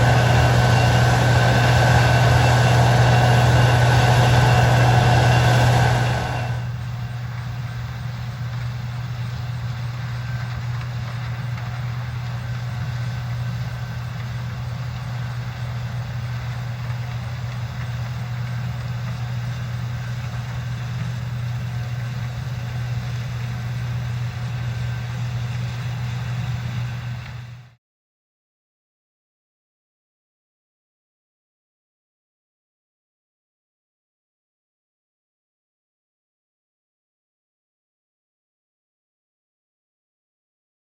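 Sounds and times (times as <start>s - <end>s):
farm machinery engine hum: 0.0s - 27.8s.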